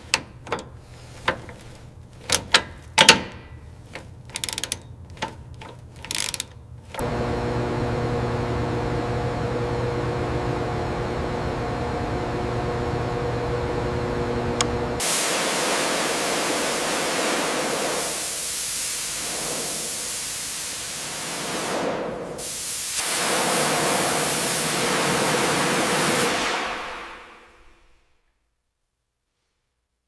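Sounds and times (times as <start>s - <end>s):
steady machine hum: 7.0s - 20.3s
click: 14.6s - 14.8s
loud continuous hiss: 15.0s - 27.9s.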